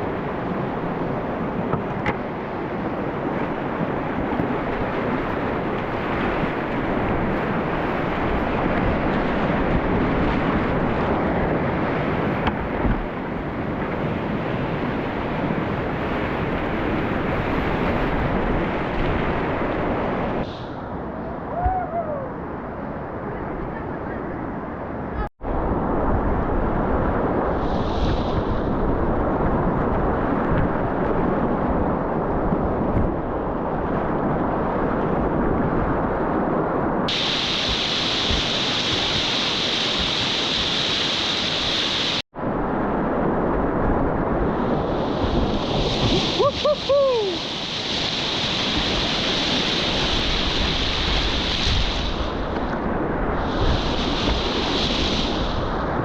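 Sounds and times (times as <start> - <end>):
wind buffeting microphone: 0.0 - 56.0
whitewater rapids roaring: 37.1 - 42.2, 44.6 - 56.0.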